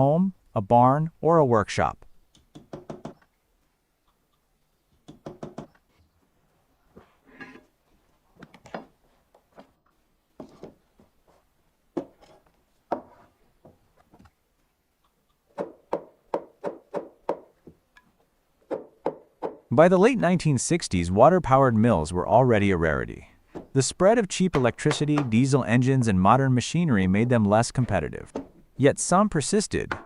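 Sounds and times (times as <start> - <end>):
sharp knocks: 24.5 - 25.4.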